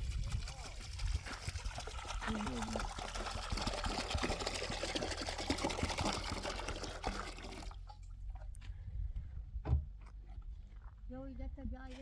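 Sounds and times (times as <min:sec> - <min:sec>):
water pouring: 0:00.0 - 0:08.1
dull thump: 0:09.6 - 0:09.9.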